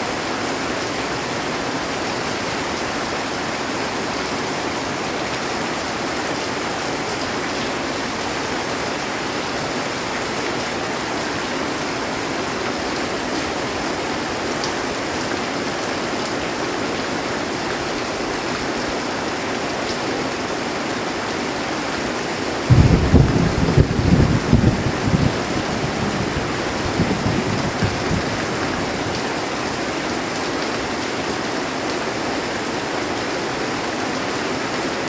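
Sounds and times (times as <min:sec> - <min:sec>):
heavy rain on a metal roof: 0:00.0 - 0:35.0
loud low rumble: 0:22.7 - 0:28.3.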